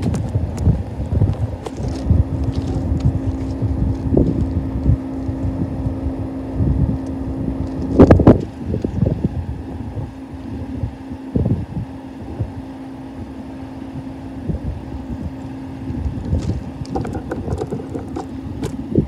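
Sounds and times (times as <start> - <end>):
diesel locomotives droning: 0.0 - 19.0
wind buffeting microphone: 0.0 - 19.0
thump of handling noise: 16.4 - 18.8.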